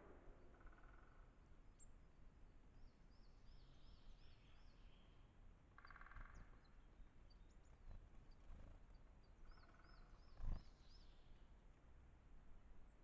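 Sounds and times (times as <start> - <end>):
faint songbird singing: 2.7 - 11.6.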